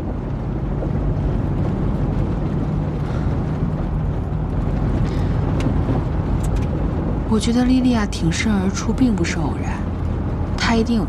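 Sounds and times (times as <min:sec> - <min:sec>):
vehicle running rumble: 0:00.0 - 0:11.0.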